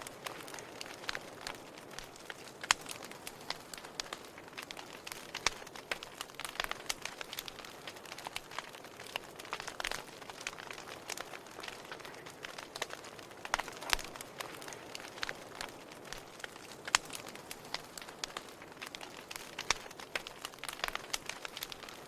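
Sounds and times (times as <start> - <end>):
firewood crackling and popping: 0.0 - 22.0.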